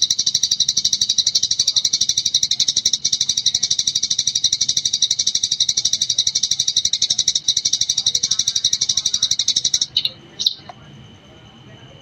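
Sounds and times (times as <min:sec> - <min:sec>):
sparrow chirping rapidly: 0:00.0 - 0:10.7.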